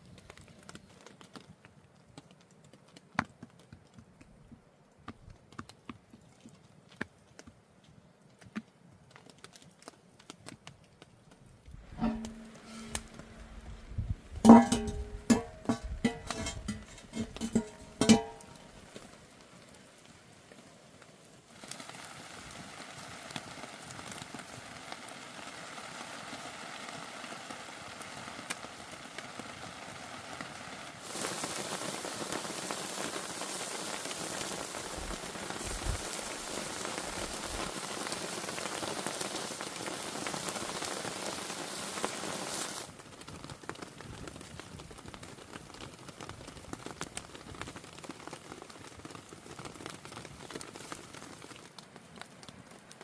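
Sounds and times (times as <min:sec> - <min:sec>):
hot oil sizzling and crackling: 0:11.3 - 0:53.0.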